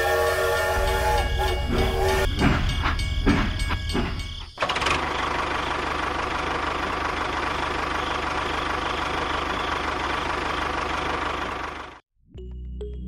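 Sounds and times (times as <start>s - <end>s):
engine idling fast: 4.6s - 12.0s.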